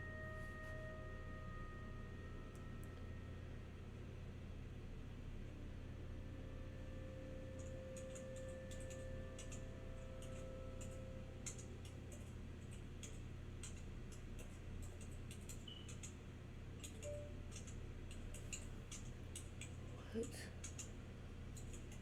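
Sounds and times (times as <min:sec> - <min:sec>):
faint held tone: 0:00.0 - 0:04.3, 0:05.6 - 0:11.7
low steady hum: 0:00.0 - 0:22.0.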